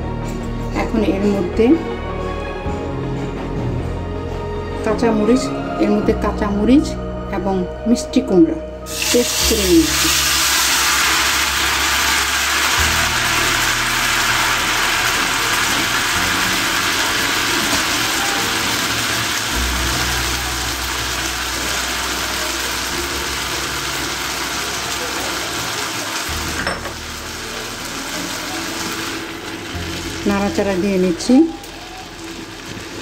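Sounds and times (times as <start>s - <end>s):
food sizzling in hot oil: 8.9s - 33.0s.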